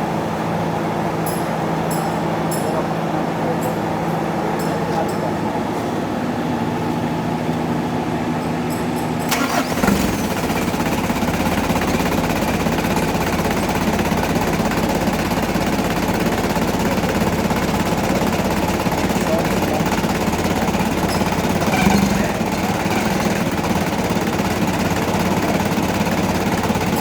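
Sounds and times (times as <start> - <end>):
car engine starting: 9.1 - 27.0.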